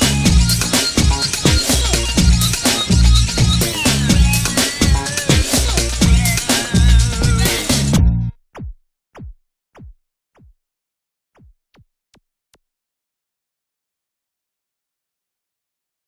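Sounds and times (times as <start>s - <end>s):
electronic zaps falling in pitch: 0.0s - 8.0s
electronic music with drum machine: 0.0s - 8.3s.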